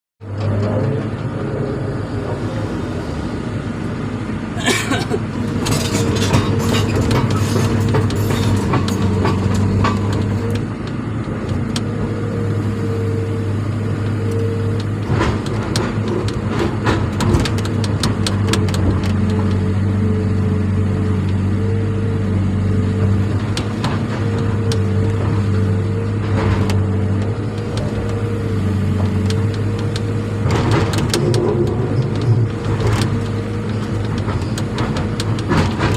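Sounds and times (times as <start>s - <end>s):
clicks and rattles: 5.5s - 11.9s, 14.8s - 19.7s, 28.9s - 35.9s.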